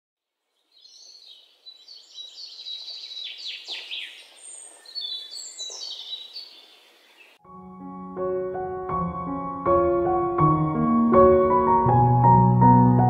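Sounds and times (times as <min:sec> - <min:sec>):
birds chirping and singing: 0:00.6 - 0:07.4.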